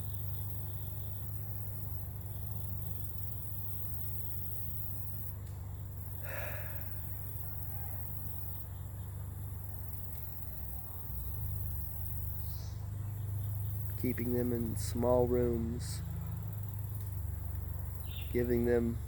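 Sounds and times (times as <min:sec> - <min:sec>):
low background hum: 0:00.0 - 0:19.0
person breathing: 0:06.2 - 0:07.2.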